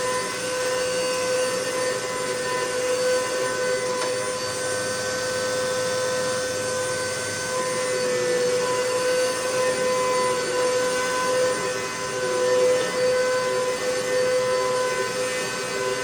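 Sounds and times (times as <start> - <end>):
vacuum cleaner motor whine: 0.0 - 16.0.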